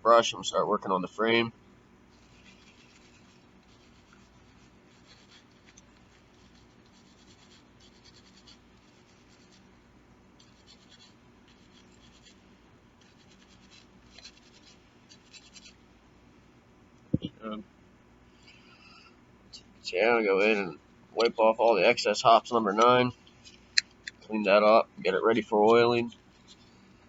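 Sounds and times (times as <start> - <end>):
bristle brush scrubbing metal: 2.1 - 9.8, 10.4 - 15.8.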